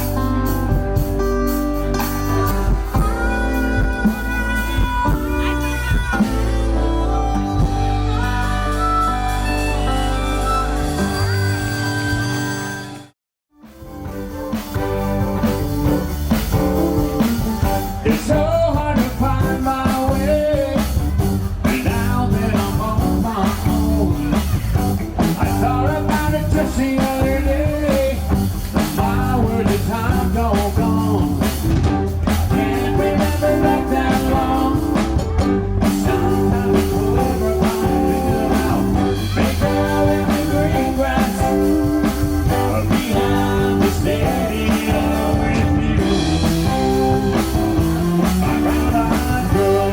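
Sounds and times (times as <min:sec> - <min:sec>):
rock band playing: 0:00.0 - 0:49.9
person singing: 0:17.2 - 0:31.6, 0:32.3 - 0:47.6, 0:48.2 - 0:49.9.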